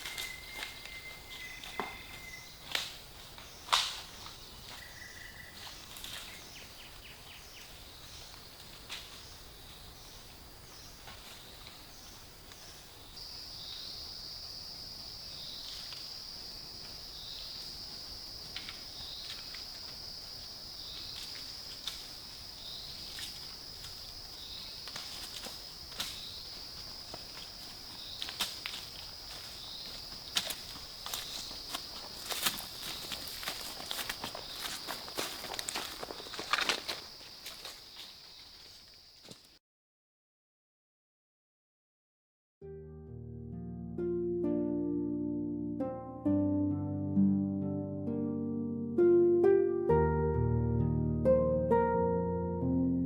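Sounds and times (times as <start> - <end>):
footsteps in dry leaves: 0.0 - 12.8, 17.4 - 39.6
insects buzzing: 0.0 - 39.5.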